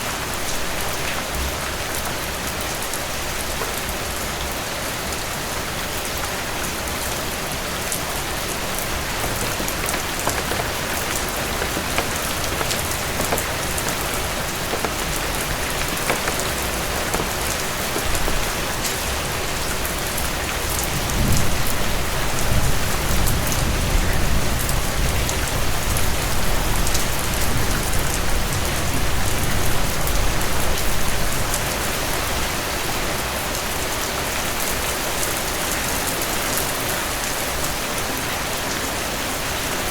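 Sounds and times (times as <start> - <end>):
heavy rain falling: 0.1 - 31.6.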